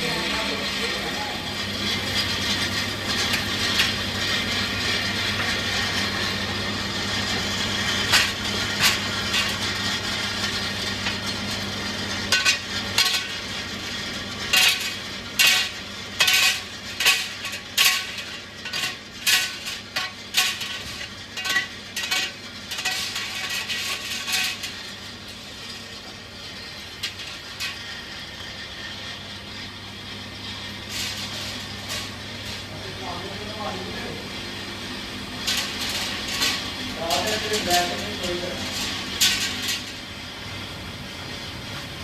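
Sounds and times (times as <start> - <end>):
steady machine hum: 0.0 - 42.0
metallic clanks and knocks: 14.5 - 24.9.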